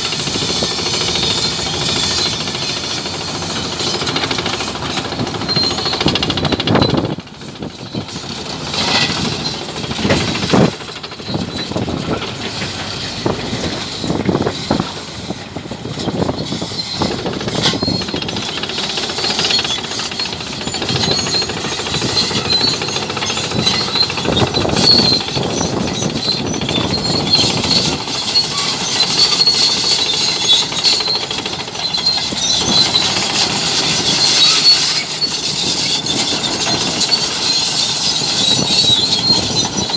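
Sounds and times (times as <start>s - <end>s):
high metallic squeals: 0.0s - 7.1s, 7.7s - 39.9s
bulldozer diesel engine: 0.0s - 39.9s
crawler tracks clanking: 0.0s - 39.9s.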